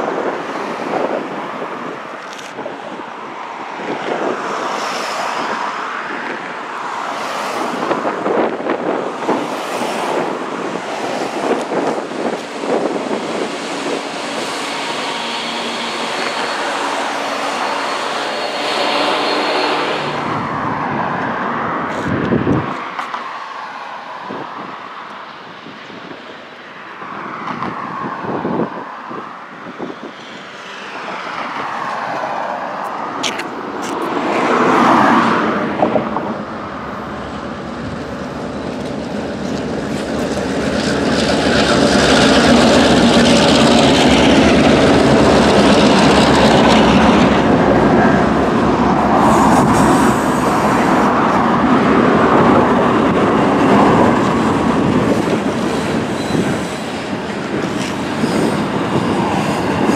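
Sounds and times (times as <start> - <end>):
diesel locomotives approaching: 0.0 - 59.9
freight train rolling past: 7.0 - 21.8, 34.2 - 59.9.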